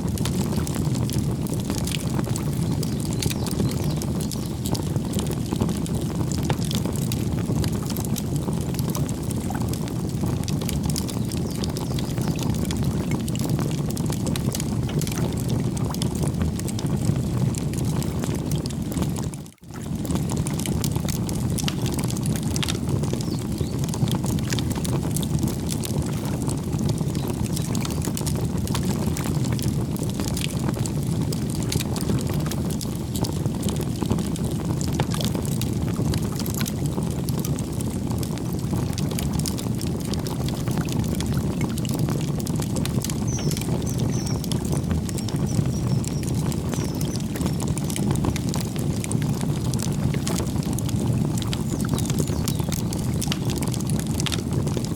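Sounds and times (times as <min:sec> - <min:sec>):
burning wood crackling and popping: 0:00.0 - 0:54.9
campfire flames rushing: 0:00.0 - 0:54.9
faint high bird chirps: 0:43.3 - 0:47.6.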